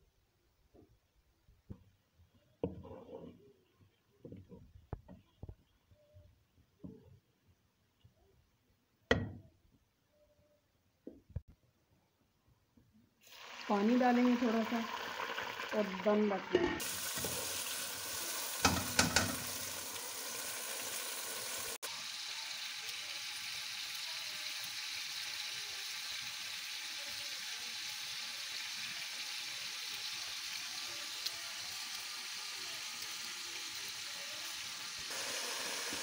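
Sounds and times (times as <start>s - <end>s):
onions sizzling in oil: 13.2s - 36.0s.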